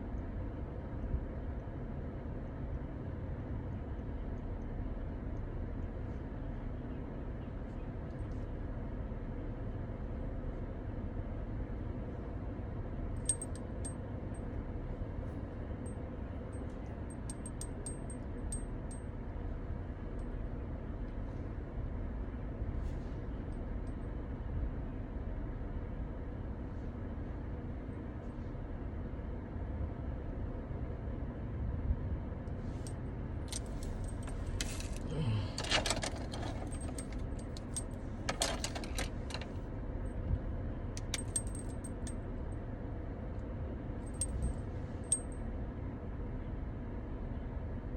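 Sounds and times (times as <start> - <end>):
steady low rumble: 0.0 - 47.9
small metal objects jingling: 33.5 - 35.0, 35.6 - 39.5, 41.0 - 42.1.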